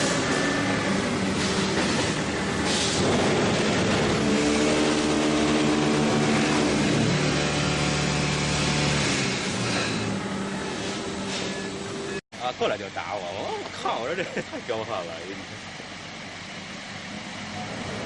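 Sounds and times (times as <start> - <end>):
machinery motors humming: 0.0 - 18.0.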